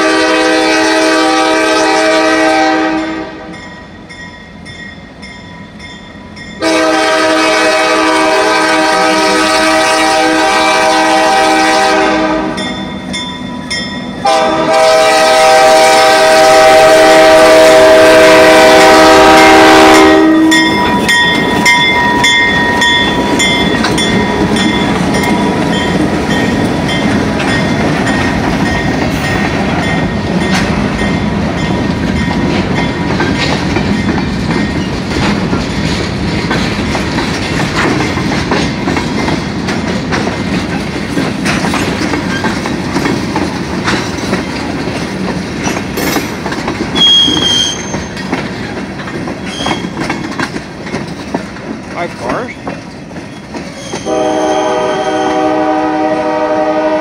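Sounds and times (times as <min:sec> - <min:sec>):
train horn: 0:00.0 - 0:03.6, 0:06.6 - 0:12.8, 0:14.2 - 0:21.2, 0:54.0 - 0:57.0
train wheels rumbling and clacking: 0:00.0 - 0:57.0
high wheel squeal: 0:47.0 - 0:48.3, 0:49.4 - 0:50.0, 0:53.7 - 0:55.3.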